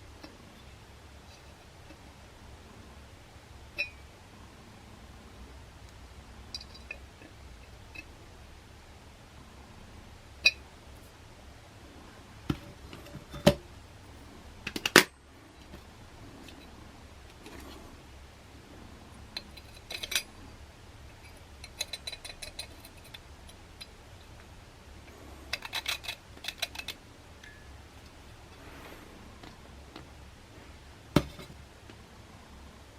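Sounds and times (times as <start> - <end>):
light metallic clinking: 3.7 - 4.0, 6.4 - 7.3, 19.3 - 20.5, 25.5 - 27.8
sharp clicks and knocks: 14.6 - 15.9.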